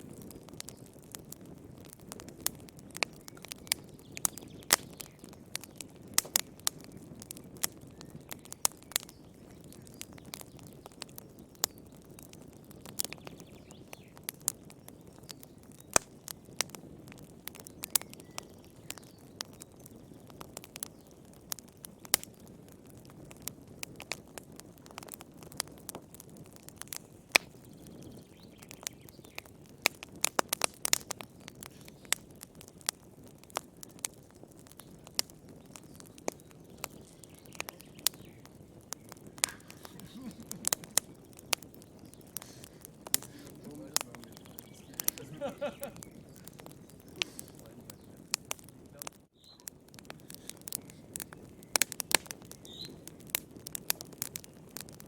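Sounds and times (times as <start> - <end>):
fire crackling and popping: 0.0 - 55.0
low rumble of flame: 0.0 - 55.0.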